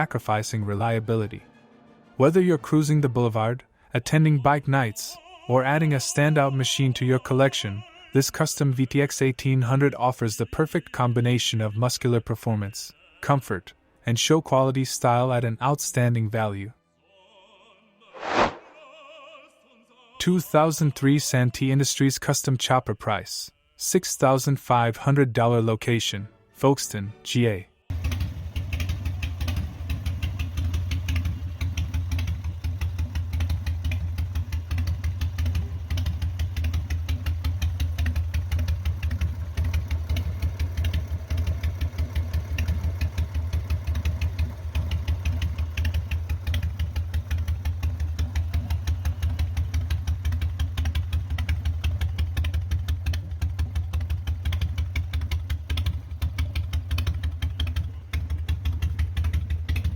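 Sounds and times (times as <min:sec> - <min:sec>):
motorcycle engine idling: 0:27.9 - 0:59.9.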